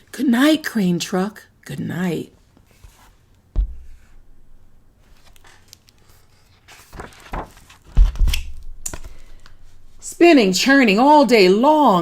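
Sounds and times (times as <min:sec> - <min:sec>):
book pages turning: 0:02.6 - 0:04.2, 0:05.0 - 0:10.0
soft thump: 0:03.5 - 0:04.2.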